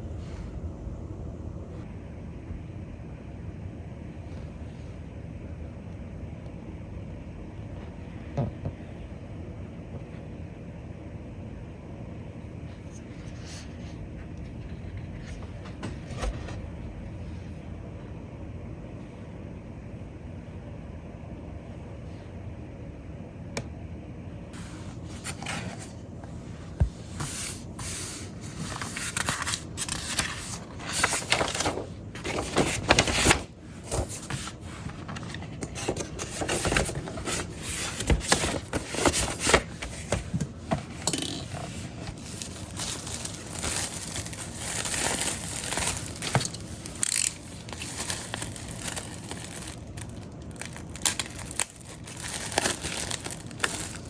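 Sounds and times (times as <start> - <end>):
paper and plastic rustling: 12.9 - 16.6, 24.6 - 54.0.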